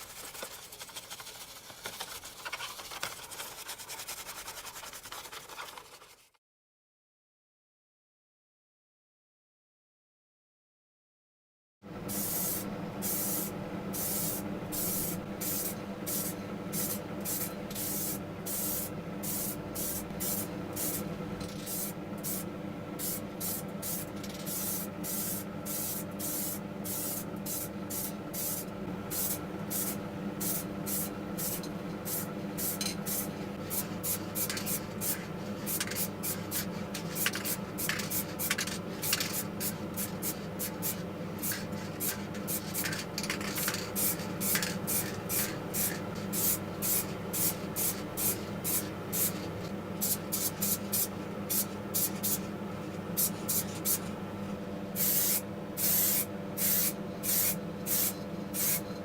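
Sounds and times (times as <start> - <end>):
hand sanding strokes: 0.0 - 6.3
steady hum: 12.0 - 59.0.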